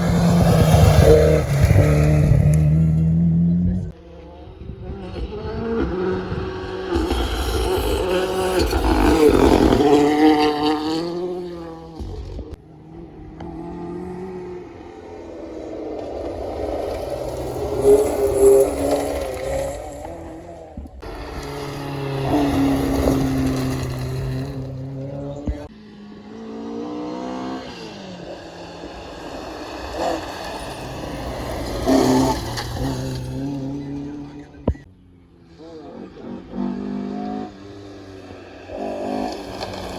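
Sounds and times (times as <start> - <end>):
rally car engine revving past: 0.0 - 39.9
tyre and gravel noise: 6.8 - 12.5, 15.5 - 25.7, 28.4 - 34.9, 38.7 - 39.9.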